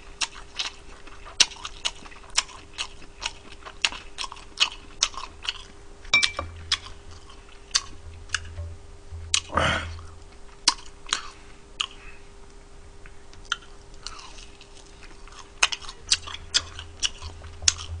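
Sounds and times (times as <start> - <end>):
crunchy fried chicken being chewed: 0.0 - 5.9, 6.7 - 8.0, 10.5 - 12.5, 13.3 - 18.0.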